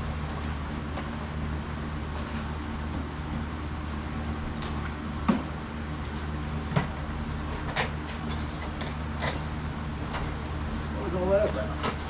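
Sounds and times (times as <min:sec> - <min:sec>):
low hum: 0:00.0 - 0:07.5.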